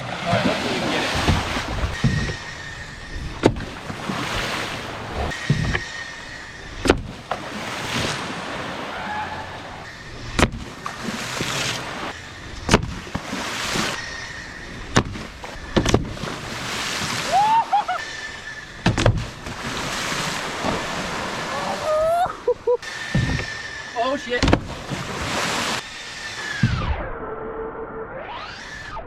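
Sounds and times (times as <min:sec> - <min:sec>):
wind noise: 0:00.0 - 0:08.9, 0:23.1 - 0:23.6
splashing water: 0:00.0 - 0:25.9.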